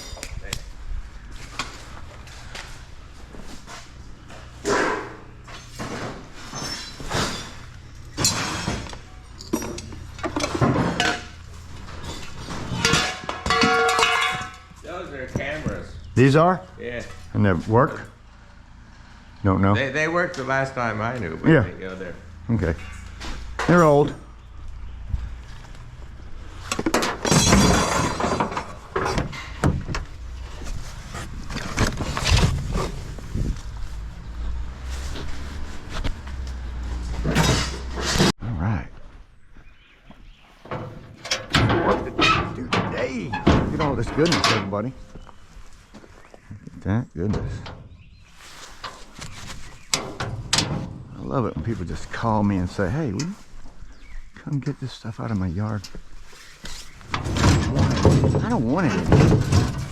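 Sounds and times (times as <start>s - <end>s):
scrap metal clanking: 3.5s - 16.2s, 22.3s - 24.2s, 26.5s - 38.3s, 40.6s - 45.0s, 56.4s - 59.9s
objects knocking and clattering: 4.6s - 15.8s, 26.7s - 33.6s, 57.1s - 59.9s
steady low rumble: 28.7s - 37.6s.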